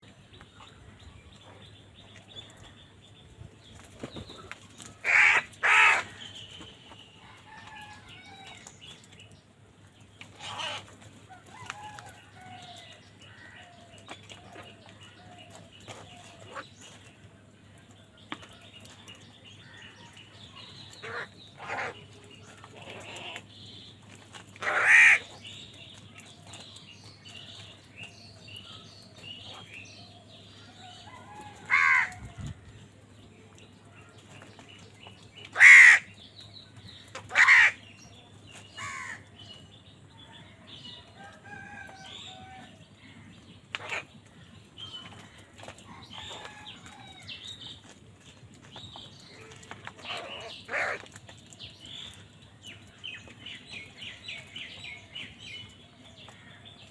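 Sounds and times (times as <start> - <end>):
crows cawing: 5.0 - 6.2, 10.4 - 10.8, 21.0 - 22.0, 24.6 - 25.3, 31.6 - 32.2, 35.5 - 36.1, 37.3 - 37.8, 38.8 - 39.2, 50.1 - 51.1.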